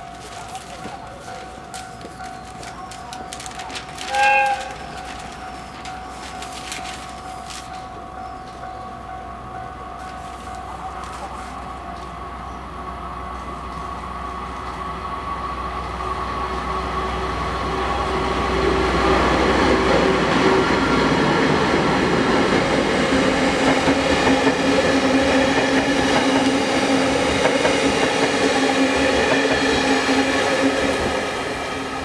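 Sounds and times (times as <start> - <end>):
diesel locomotive engine rumbling: 0.0 - 32.0
train wheels rolling over rails: 15.7 - 32.0.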